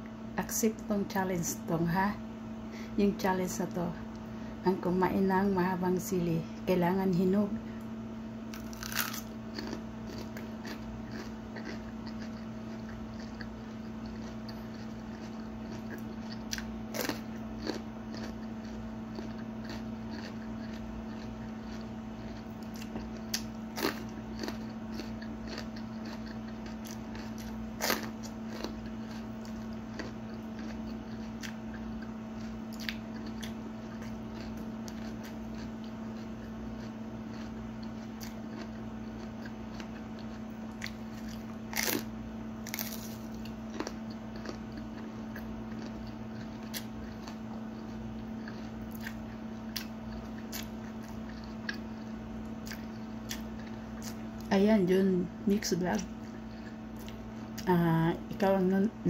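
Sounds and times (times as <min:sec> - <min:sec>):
steady low hum: 0:00.0 - 0:59.0
person crunching chili pepper: 0:08.5 - 0:54.5, 0:56.0 - 0:57.7.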